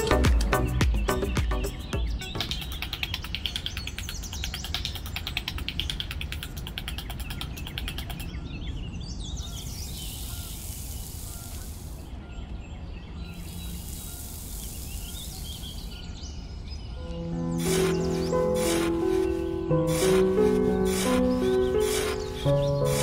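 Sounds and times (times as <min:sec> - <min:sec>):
birds chirping: 0:00.0 - 0:23.0
steady high hiss: 0:09.6 - 0:12.2, 0:13.3 - 0:16.3, 0:17.4 - 0:23.0.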